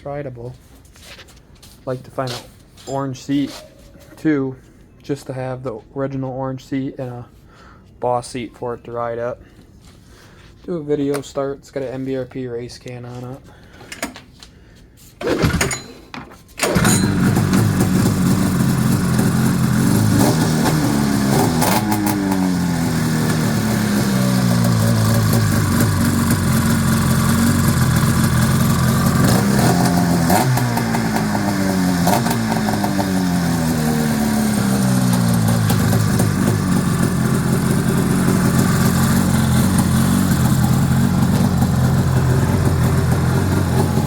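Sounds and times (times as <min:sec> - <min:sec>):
snowmobile engine starting and idling: 0:15.2 - 0:16.0, 0:16.6 - 0:44.0
engine revving: 0:16.7 - 0:44.0.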